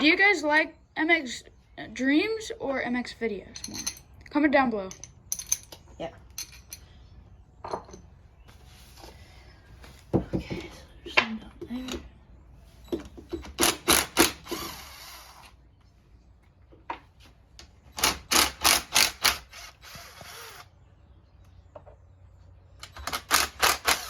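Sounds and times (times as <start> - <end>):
drill whirring: 13.5 - 15.5, 18.0 - 20.7, 22.9 - 24.0.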